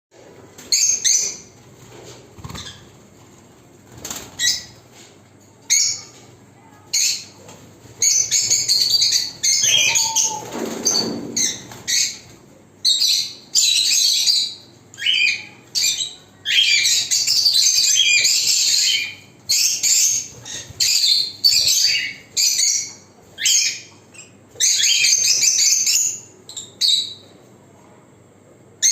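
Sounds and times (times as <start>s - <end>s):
lovebirds chattering shrilly: 8.0s - 27.2s.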